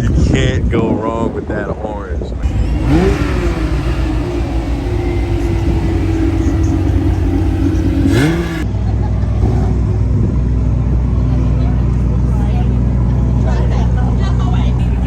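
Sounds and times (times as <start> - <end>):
car engine revving: 2.4 - 8.6
engine idling: 2.4 - 8.6.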